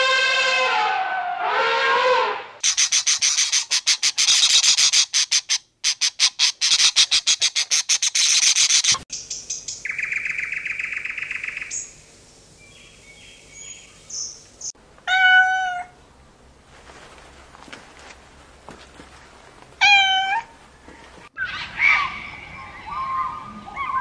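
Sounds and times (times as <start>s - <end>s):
rapid high bird chirping: 2.6s - 12.0s
cat meowing: 15.1s - 16.0s, 19.8s - 20.5s.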